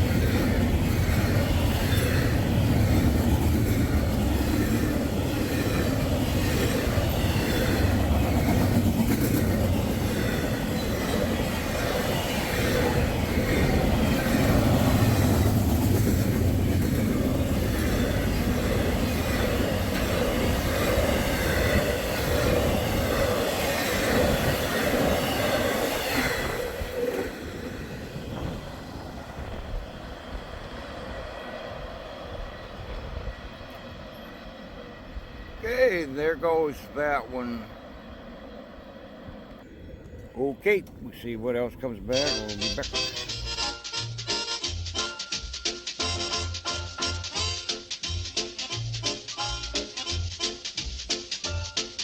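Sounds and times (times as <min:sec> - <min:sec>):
train rumbling past: 0:00.0 - 0:52.0.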